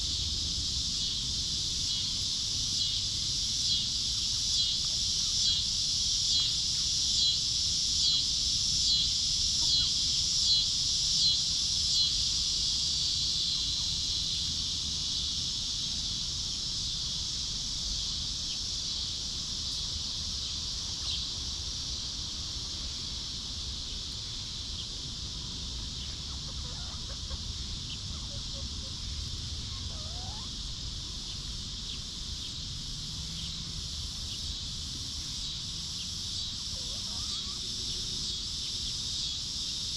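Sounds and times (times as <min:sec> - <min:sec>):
insect drone: 0:00.0 - 0:39.9
faint chicken calls: 0:09.6 - 0:10.0, 0:26.0 - 0:30.8, 0:36.5 - 0:38.4.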